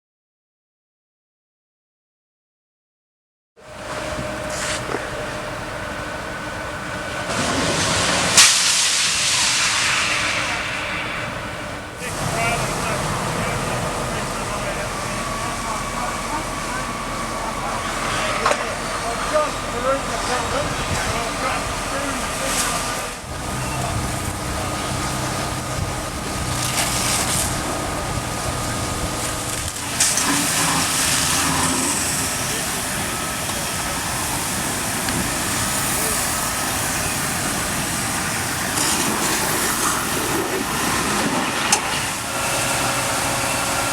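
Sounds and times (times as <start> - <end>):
engine running: 3.6 - 43.9
fire burning with a hiss: 3.8 - 43.9
sharp crack: 7.3 - 12.6.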